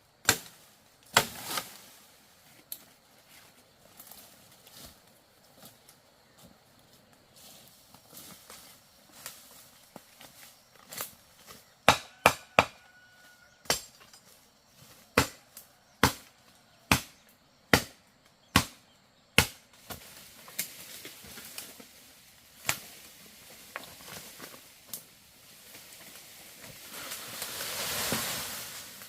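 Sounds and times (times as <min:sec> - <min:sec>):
blade chopping into wood: 0:19.4 - 0:19.6.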